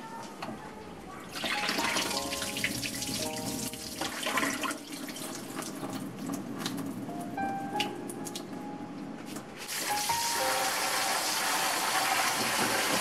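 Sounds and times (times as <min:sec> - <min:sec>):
soft background music: 0:01.3 - 0:13.0
tap water running into sink: 0:01.4 - 0:06.8, 0:09.6 - 0:13.0.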